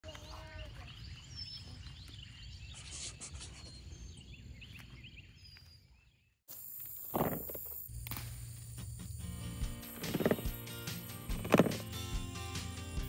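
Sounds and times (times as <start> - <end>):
birds chirping: 0.0 - 6.4, 9.2 - 13.0.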